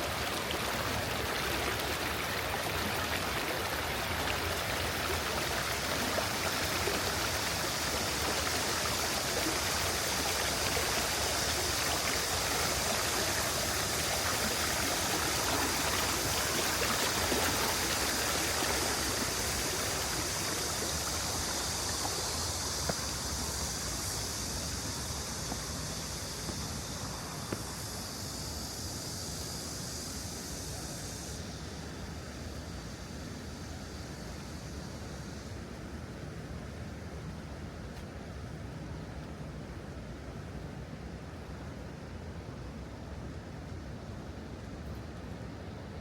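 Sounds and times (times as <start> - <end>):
water rushing over rocks: 0.0 - 24.3.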